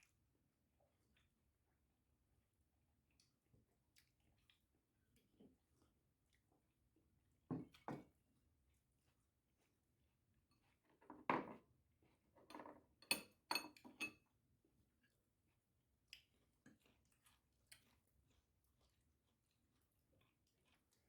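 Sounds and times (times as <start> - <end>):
dishes and cutlery clinking: 12.4 - 14.2.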